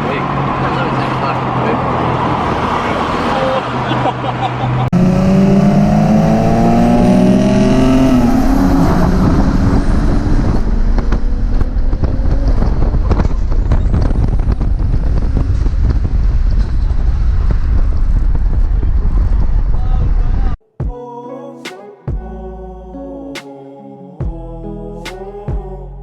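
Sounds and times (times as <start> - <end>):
car engine slowing: 4.8 - 19.8.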